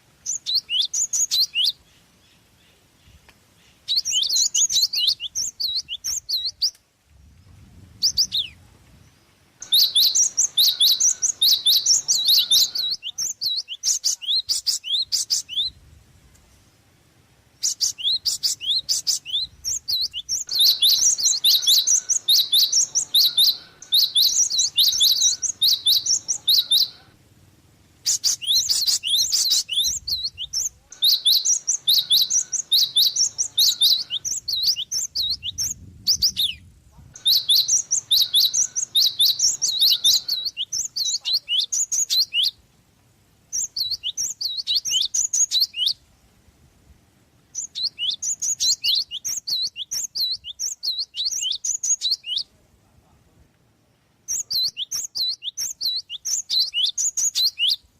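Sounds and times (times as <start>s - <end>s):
sparrow chirping rapidly: 0.2s - 6.8s, 8.0s - 8.6s, 9.6s - 15.8s, 17.5s - 27.2s, 28.0s - 42.6s, 43.5s - 46.0s, 47.5s - 52.4s, 54.3s - 57.8s.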